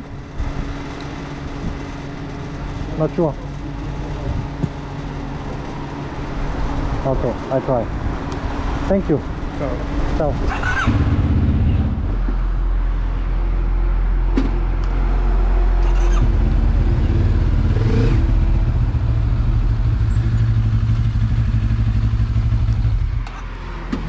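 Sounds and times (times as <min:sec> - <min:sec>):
motorcycle engine running at low revs: 0:00.0 - 0:08.2, 0:10.8 - 0:12.6, 0:16.2 - 0:24.0.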